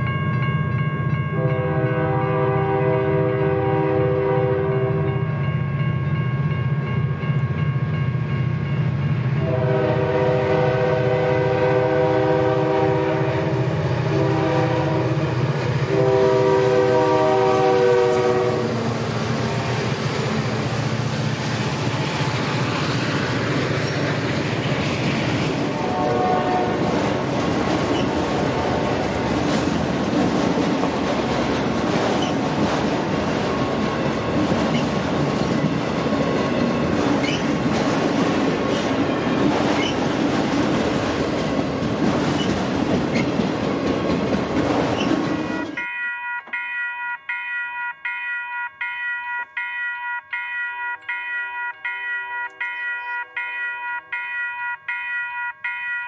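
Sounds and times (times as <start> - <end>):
locomotive horn: 1.3 - 5.2, 9.4 - 19.4, 25.6 - 27.2, 27.9 - 29.3
train wheels clicking over rail joints: 26.8 - 45.9.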